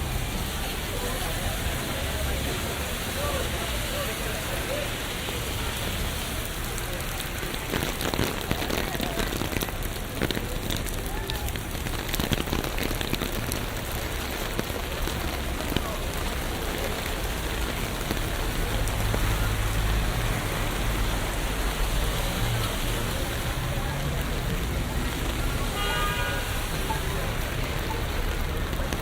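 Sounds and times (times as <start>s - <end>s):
rain on streets: 0.0s - 29.0s
traffic rumble: 0.0s - 29.0s.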